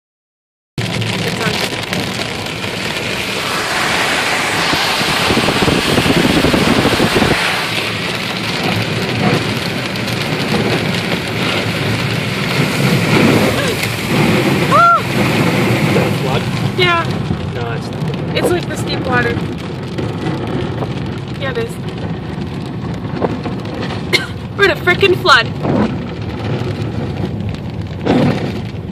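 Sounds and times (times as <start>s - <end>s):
hail pelting a car: 0.8s - 28.9s.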